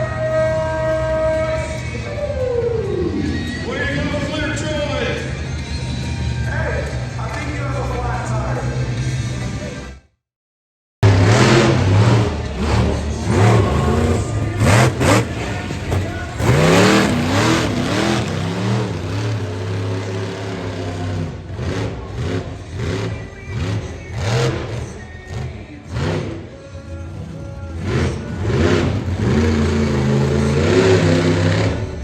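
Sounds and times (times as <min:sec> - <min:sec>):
monster truck engine revving: 0:11.0 - 0:32.0.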